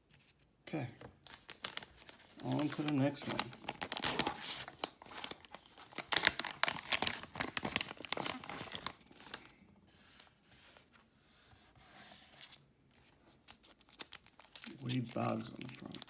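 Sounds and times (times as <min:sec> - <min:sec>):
cards rustling: 0:01.0 - 0:11.0, 0:12.2 - 0:16.0
wrapper tearing and crinkling: 0:01.3 - 0:09.4, 0:13.5 - 0:16.0.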